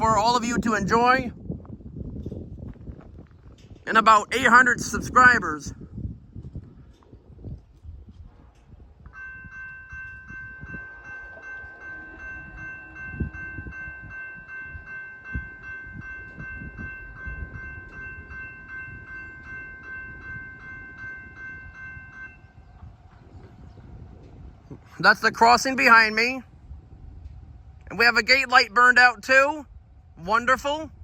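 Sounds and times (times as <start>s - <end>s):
crossing bell ringing: 3.8s - 5.6s, 8.5s - 23.8s
low rumbling: 5.7s - 30.3s.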